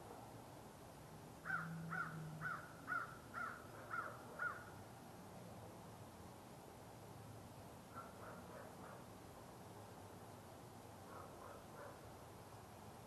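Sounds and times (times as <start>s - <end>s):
crow cawing: 1.4s - 4.7s.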